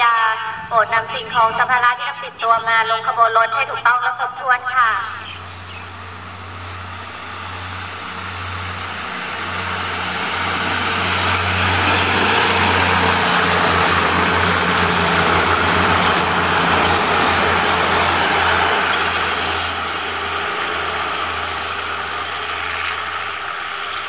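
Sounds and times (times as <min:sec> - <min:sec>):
diesel engine drone: 0:00.0 - 0:24.0
rush of wheels on rails: 0:05.2 - 0:24.0.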